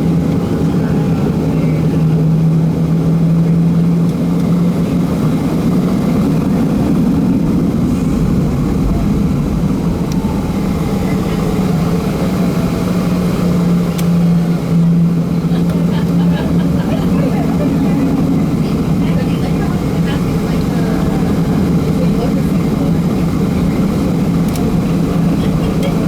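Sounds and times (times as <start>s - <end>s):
aircraft cabin engine drone: 0.0s - 26.0s
rush of air: 6.2s - 13.8s.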